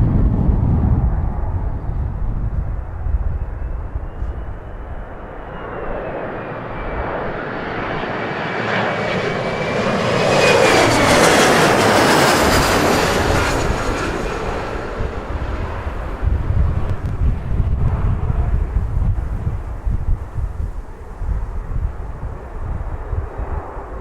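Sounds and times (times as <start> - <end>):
high engine whine: 0.0 - 24.0
jet engines passing: 0.0 - 24.0
wind rumbling on microphone: 0.0 - 24.0.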